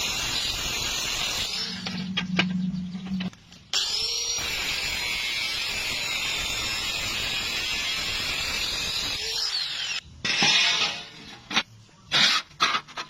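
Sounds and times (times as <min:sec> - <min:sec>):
welding arc frying hiss: 0:00.0 - 0:01.8, 0:03.8 - 0:10.0.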